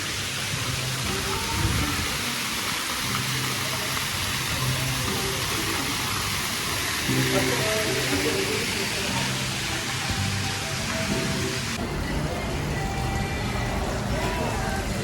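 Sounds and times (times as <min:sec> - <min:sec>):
faint voices: 0:01.0 - 0:15.0.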